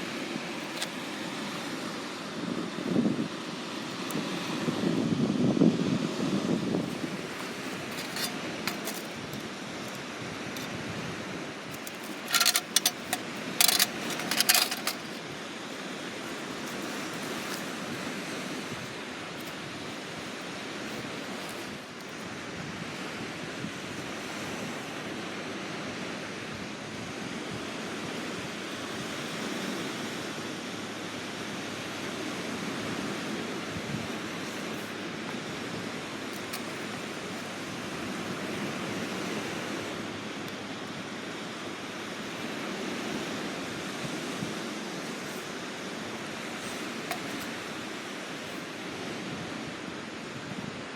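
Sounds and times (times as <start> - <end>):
sea waves on shore: 0.0 - 50.9
sharp clicks and clatter: 6.8 - 10.0, 11.7 - 17.8.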